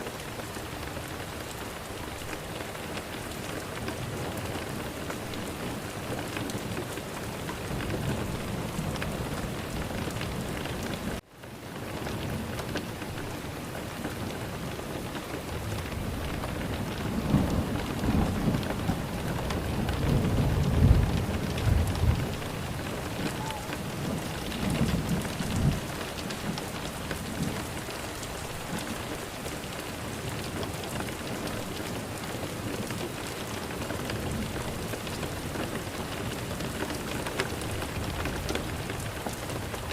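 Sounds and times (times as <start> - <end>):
rain hiss: 0.0 - 39.9
rolling thunder: 16.0 - 27.5.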